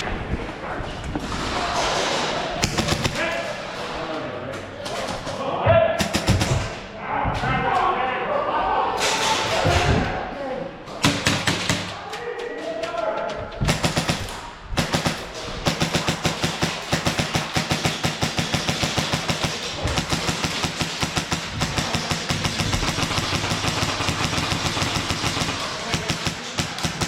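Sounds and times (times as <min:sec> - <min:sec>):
airsoft guns firing automatic: 0:02.6 - 0:03.4, 0:06.0 - 0:06.8, 0:11.0 - 0:12.0, 0:13.6 - 0:27.0.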